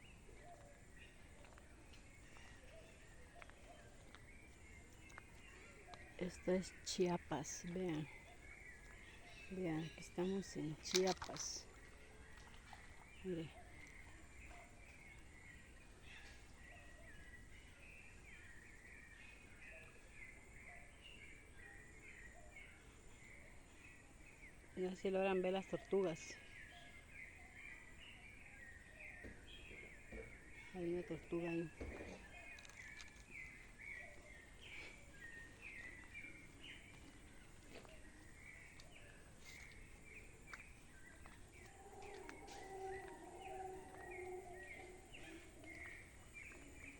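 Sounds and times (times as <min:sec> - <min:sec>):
faint birds chirping: 0:00.0 - 0:46.9.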